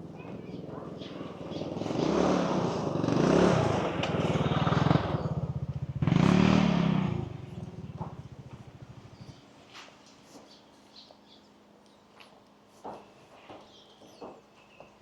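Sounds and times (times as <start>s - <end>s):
small engine running: 1.3s - 9.4s.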